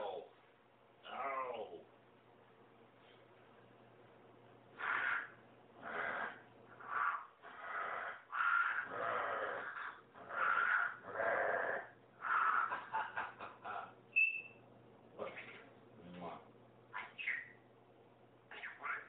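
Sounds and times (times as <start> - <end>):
parrot hissing: 4.8 - 12.7.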